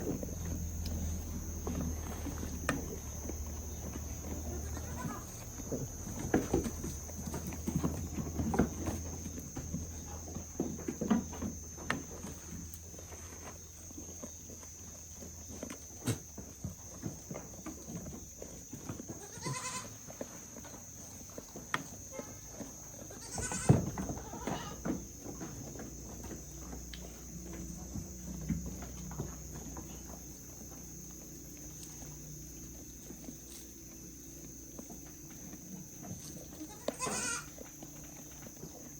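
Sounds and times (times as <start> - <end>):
goats bleating: 4.5 - 5.4, 19.2 - 20.0, 23.1 - 24.8, 36.6 - 37.5.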